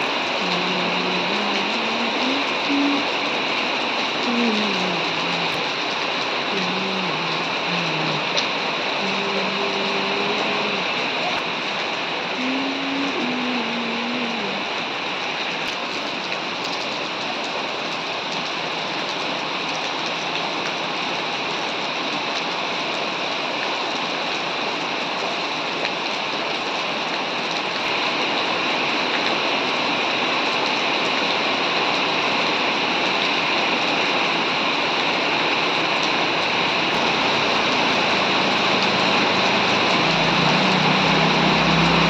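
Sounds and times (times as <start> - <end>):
heavy rain pouring: 0.0 - 42.0.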